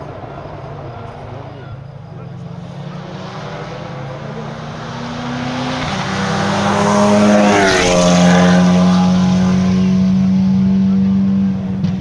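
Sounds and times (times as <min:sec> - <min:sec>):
gear change: 0:00.0 - 0:12.0
race car engine passing by: 0:00.0 - 0:12.0.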